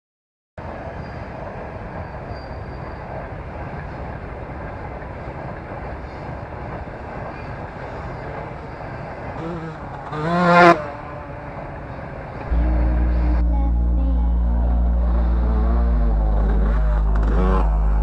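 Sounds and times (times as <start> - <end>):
dirt bike engine rumbling: 9.4 - 11.2, 12.5 - 18.0.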